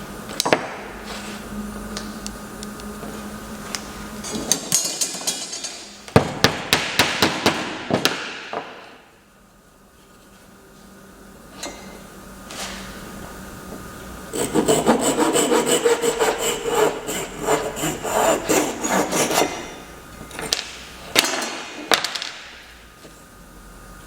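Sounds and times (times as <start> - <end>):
hand tool rasping on wood: 14.3 - 19.9.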